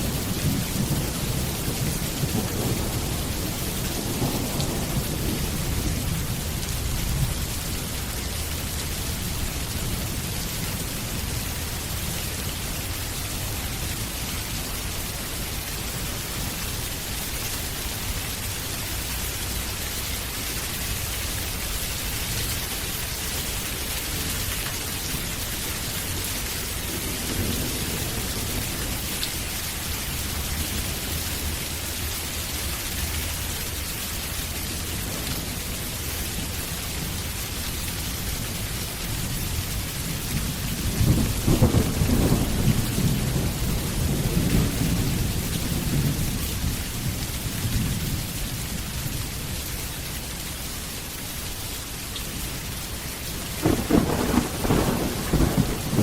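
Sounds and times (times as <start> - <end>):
rolling thunder: 0.0 - 7.6, 26.0 - 29.1, 39.5 - 48.3, 53.6 - 56.0
heavy rain: 0.0 - 56.0.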